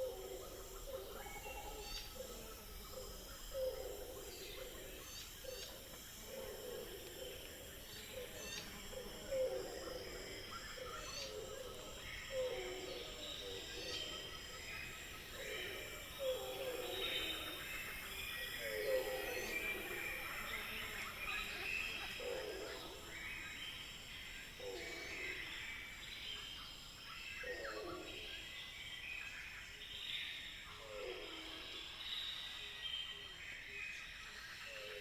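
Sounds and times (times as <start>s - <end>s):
high insect trill: 0.0s - 27.3s.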